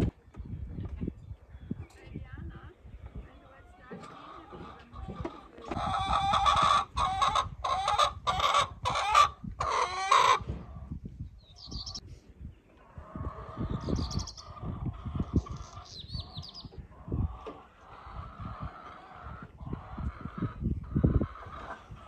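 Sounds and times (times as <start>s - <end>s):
chickens squawking: 3.6s - 11.0s, 12.8s - 22.0s.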